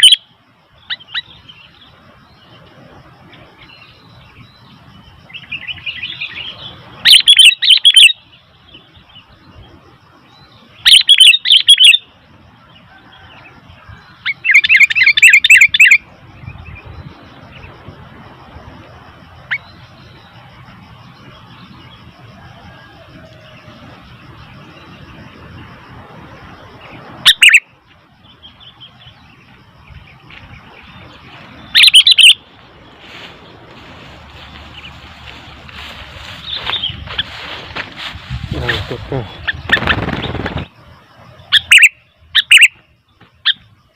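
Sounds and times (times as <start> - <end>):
bird shrill chattering calls: 0.0 - 0.2, 5.5 - 8.2, 10.8 - 12.0, 14.2 - 16.0, 27.2 - 27.6, 31.6 - 32.5, 38.5 - 40.7, 41.5 - 42.8
bulbul whistled calls: 0.0 - 1.8, 5.3 - 9.3, 10.4 - 12.1, 13.0 - 17.7, 26.8 - 27.7, 30.8 - 33.6, 41.5 - 42.8.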